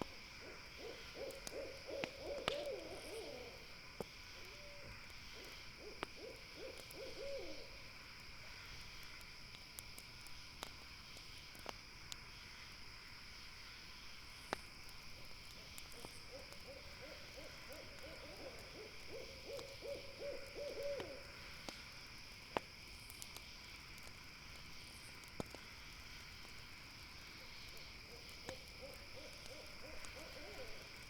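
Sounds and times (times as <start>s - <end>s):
owl hooting: 0.4s - 3.7s, 4.4s - 7.8s, 16.0s - 21.3s, 28.4s - 31.0s
campfire crackling pops: 1.0s - 7.0s, 7.8s - 31.0s.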